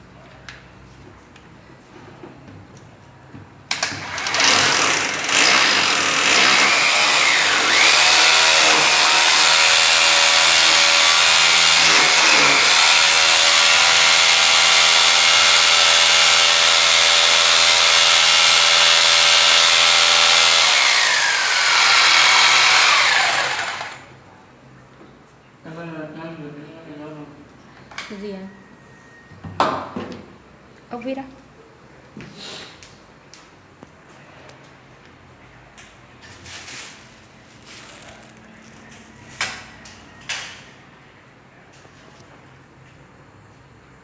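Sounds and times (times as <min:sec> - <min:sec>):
electric hammer drill whining: 0:03.7 - 0:24.1.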